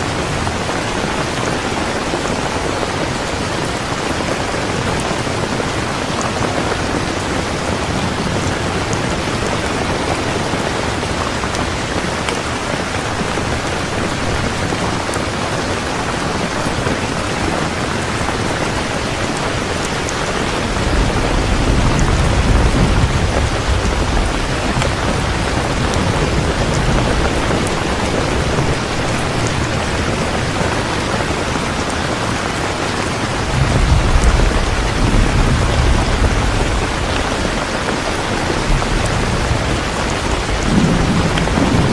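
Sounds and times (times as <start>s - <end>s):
heavy rain falling: 0.0s - 41.9s
low rolls of thunder: 20.2s - 31.7s, 33.4s - 41.9s.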